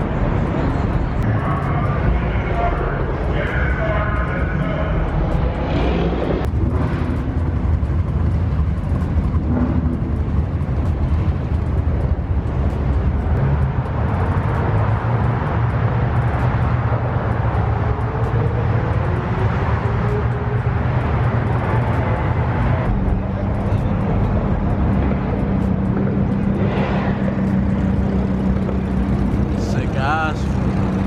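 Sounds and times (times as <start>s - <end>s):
car engine rumbling: 0.0s - 31.0s.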